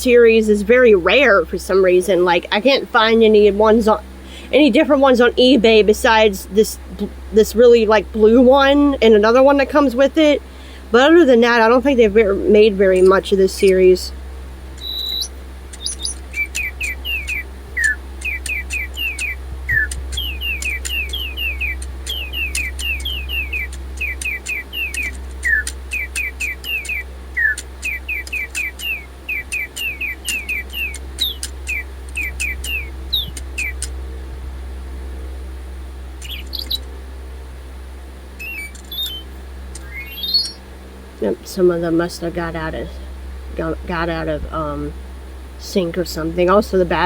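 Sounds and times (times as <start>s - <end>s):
steady low hum: 0.0s - 47.0s
electronic bird chirps: 14.8s - 33.9s, 36.2s - 36.9s, 38.4s - 40.6s.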